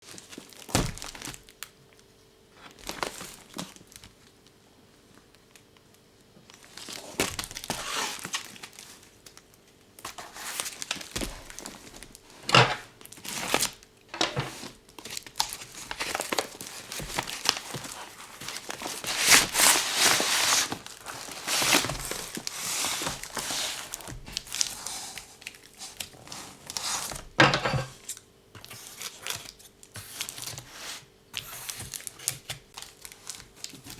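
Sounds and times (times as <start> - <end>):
packaging crinkling and tearing: 0.1 - 1.7, 2.7 - 4.3, 6.5 - 33.9.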